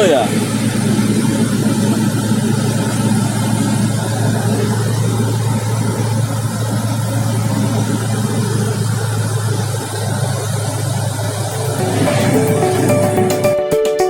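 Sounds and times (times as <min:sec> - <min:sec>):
engine running: 0:00.0 - 0:13.8.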